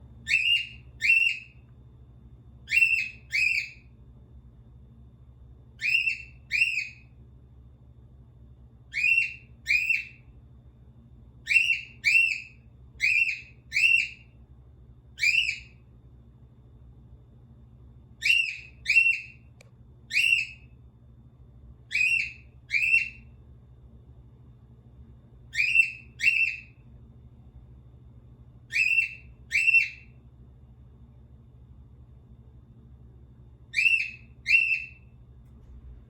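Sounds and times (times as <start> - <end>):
cockatiel whistling: 0.2 - 1.6, 2.7 - 3.8, 5.8 - 7.0, 8.9 - 10.2, 11.4 - 14.3, 15.2 - 15.8, 18.2 - 19.4, 20.1 - 20.7, 21.9 - 23.2, 25.5 - 26.7, 28.7 - 30.1, 33.7 - 35.0.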